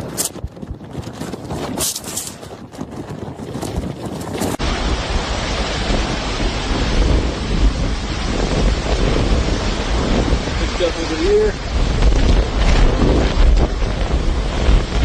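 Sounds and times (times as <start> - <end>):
wind buffeting microphone: 0.0 - 15.0
deep thunder rumble: 4.5 - 15.0
heavy rain: 4.6 - 15.0.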